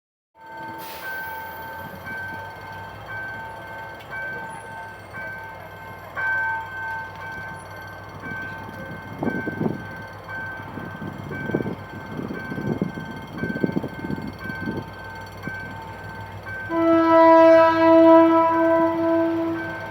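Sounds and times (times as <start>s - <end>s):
diesel locomotive running: 0.4s - 19.9s
two-tone crossing alarm: 9.2s - 19.9s.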